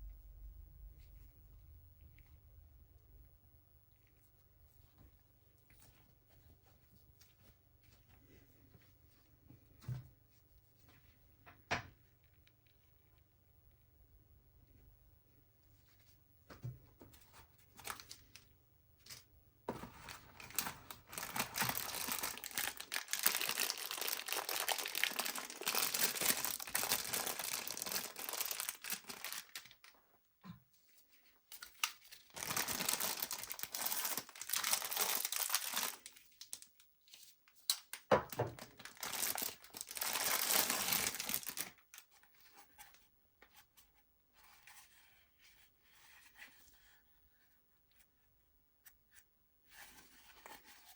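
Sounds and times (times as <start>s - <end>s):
packaging crinkling and tearing: 19.8s - 30.0s, 31.5s - 42.1s.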